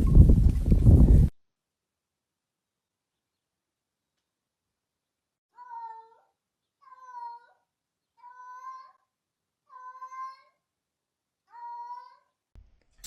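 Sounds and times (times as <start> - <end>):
cat meowing: 6.8 - 7.6, 8.2 - 9.0, 9.7 - 10.5.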